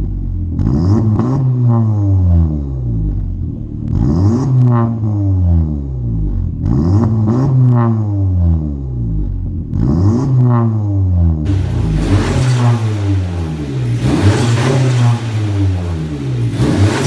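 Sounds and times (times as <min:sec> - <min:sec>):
car engine revving: 0:00.4 - 0:02.8, 0:11.5 - 0:17.0
hiss on engine rev: 0:11.5 - 0:17.0.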